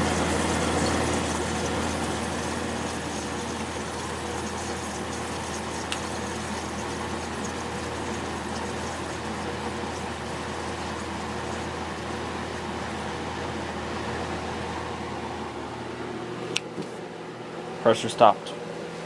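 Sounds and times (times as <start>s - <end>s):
refrigerant hissing and gurgling: 0.0s - 13.6s
dehumidifier humming: 0.0s - 19.0s.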